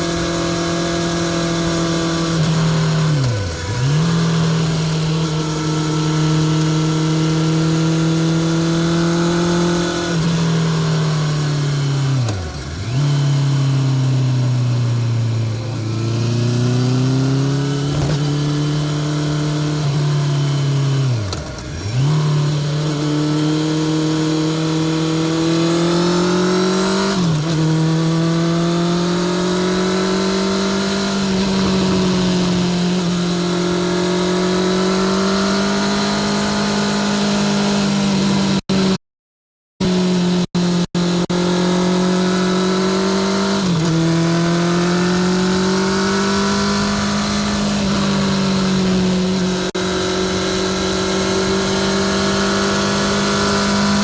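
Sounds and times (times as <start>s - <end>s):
motorcycle engine running: 43.9s - 54.0s.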